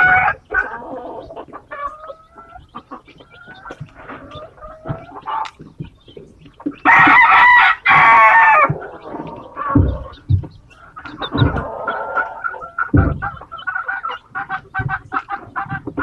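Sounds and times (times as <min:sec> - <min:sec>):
hen clucking: 0:00.0 - 0:16.0
low thumps: 0:03.5 - 0:13.6
rooster crowing: 0:06.9 - 0:09.8.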